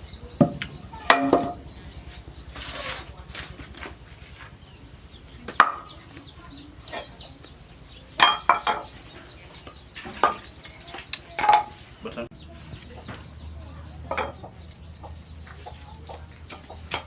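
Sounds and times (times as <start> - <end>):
chickens clucking: 0.0 - 17.0
sharp knocks: 0.4 - 1.8.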